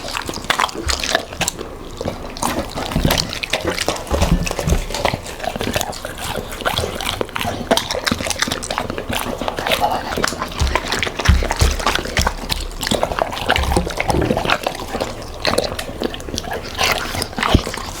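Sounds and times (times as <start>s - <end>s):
dogs chewing and licking: 0.0s - 18.0s
low thuds: 10.5s - 14.4s.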